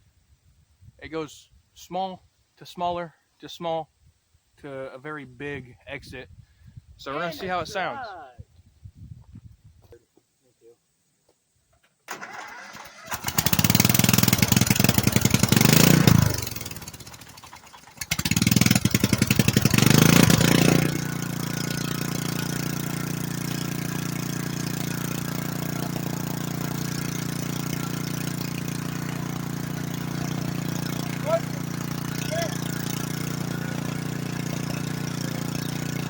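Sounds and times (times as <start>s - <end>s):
small engine revving and idling: 12.1s - 36.0s.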